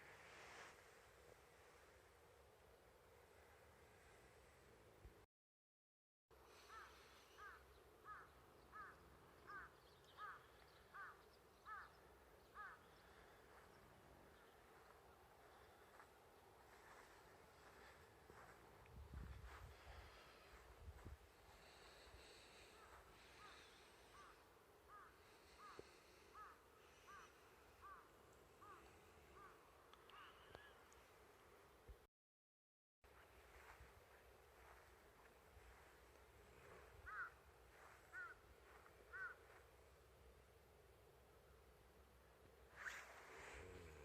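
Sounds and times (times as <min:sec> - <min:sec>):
crow cawing: 0:06.6 - 0:13.4, 0:21.6 - 0:30.8, 0:36.7 - 0:39.6
faint short arched calls: 0:06.6 - 0:13.5, 0:36.6 - 0:39.6, 0:42.7 - 0:44.0.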